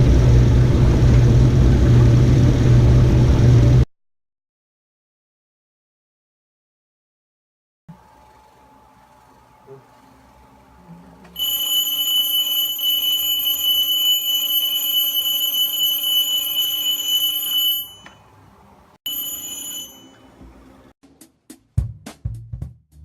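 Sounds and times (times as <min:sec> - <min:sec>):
alarm clock ringing: 0:11.4 - 0:18.2, 0:19.1 - 0:20.4.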